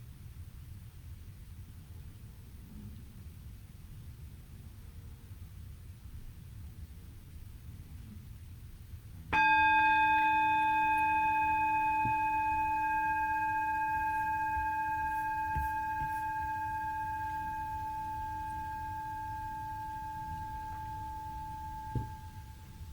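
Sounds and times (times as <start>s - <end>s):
meditation bell ringing: 9.4s - 22.9s.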